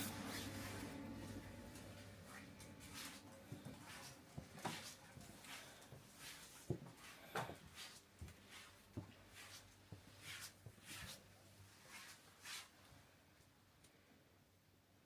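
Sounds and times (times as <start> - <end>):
brushing swishes of movement: 2.2 - 12.8.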